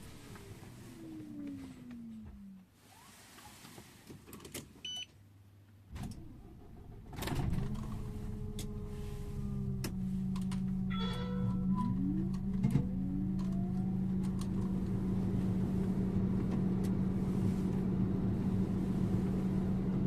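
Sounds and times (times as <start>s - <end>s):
bus drivetrain accelerating: 0.0s - 2.7s, 6.0s - 20.0s
clicks: 9.8s - 15.0s
short tone: 10.8s - 14.1s.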